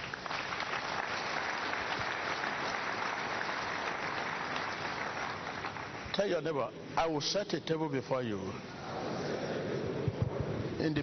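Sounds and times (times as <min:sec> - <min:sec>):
congregation applauding: 0:00.0 - 0:06.7.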